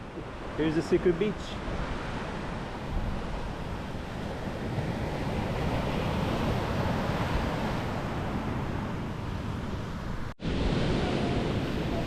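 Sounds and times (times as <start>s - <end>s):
waves washing on beach: 0.0s - 12.0s
wind buffeting microphone: 1.6s - 12.0s.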